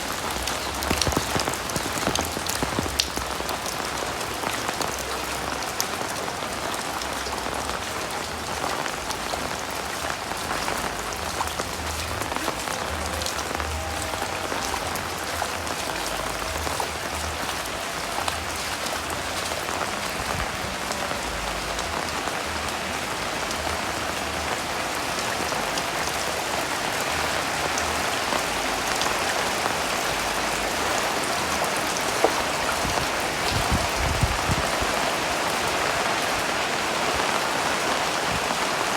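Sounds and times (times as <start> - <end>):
sharp raindrop hits: 0.0 - 5.5.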